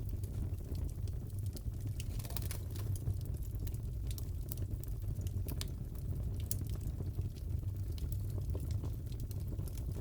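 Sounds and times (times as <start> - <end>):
fireplace crackling: 0.0 - 10.0.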